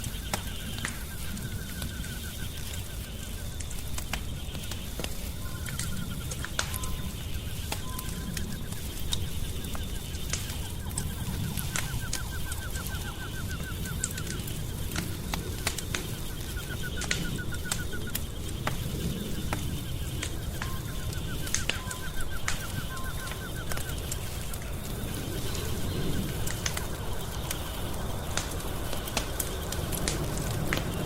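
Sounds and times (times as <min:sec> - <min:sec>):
wood fire crackling and popping: 0:00.0 - 0:31.0.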